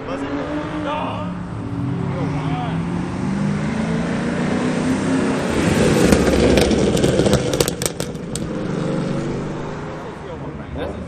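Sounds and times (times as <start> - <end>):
car engine revving: 0.0 - 10.9
exhaust pops and crackles: 5.4 - 8.9.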